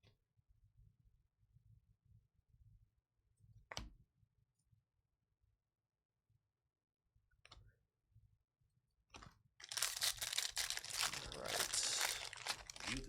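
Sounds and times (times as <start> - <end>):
plastic wrapper crinkling and tearing: 9.6 - 13.0.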